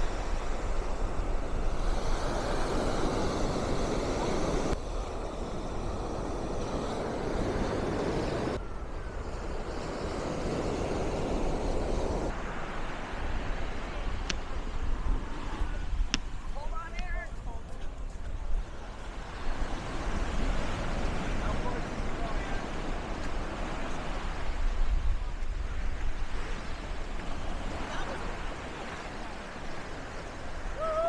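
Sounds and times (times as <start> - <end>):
ocean surf breaking: 0.0 - 31.0
wind rumbling on microphone: 0.0 - 31.0.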